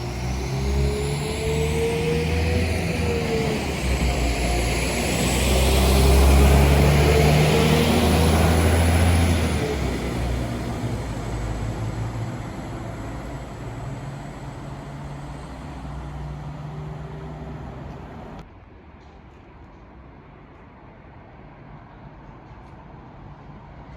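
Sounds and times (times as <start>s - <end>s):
diesel train passing: 0.0s - 18.4s.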